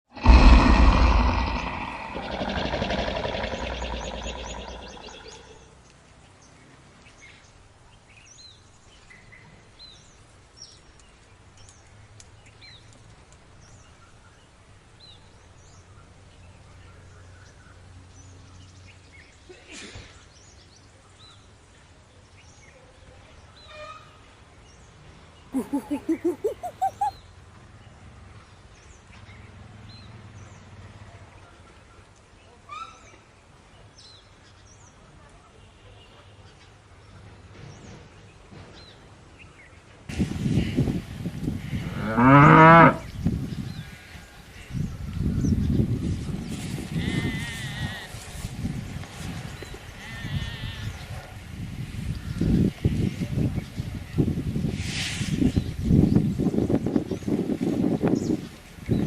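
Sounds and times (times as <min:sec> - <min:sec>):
steady low rumble: 0:00.1 - 0:05.4
faint bird chirps: 0:01.1 - 0:05.7, 0:25.6 - 0:27.2
loud short bird call: 0:25.6 - 0:27.2.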